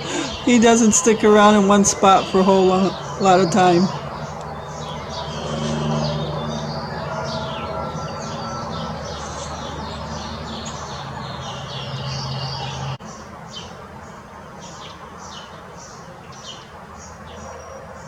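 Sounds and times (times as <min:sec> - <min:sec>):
steady low hum: 0:00.0 - 0:13.0
songbirds chirping: 0:00.0 - 0:18.0.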